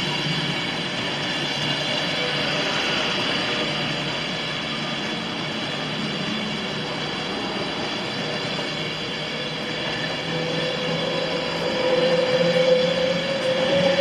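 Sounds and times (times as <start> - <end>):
train running: 0.0 - 14.0.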